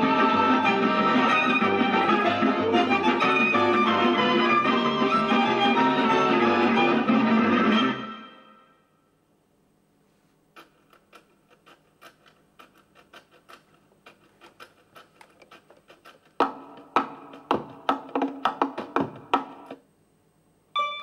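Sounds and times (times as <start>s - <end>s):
sharp percussion knocks: 16.4s - 19.8s.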